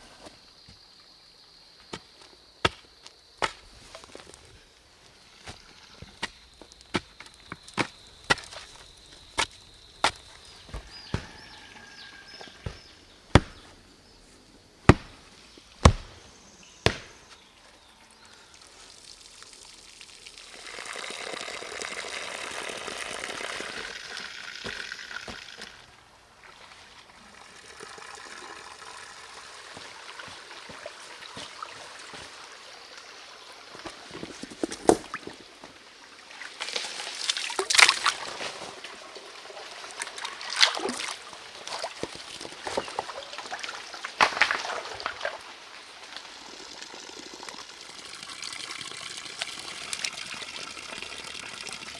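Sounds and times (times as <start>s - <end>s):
sharp knocks: 10.0s - 11.8s, 12.4s - 13.7s, 14.9s - 15.2s, 15.8s - 16.2s, 16.8s - 17.2s
water pouring and trickling: 18.3s - 51.9s.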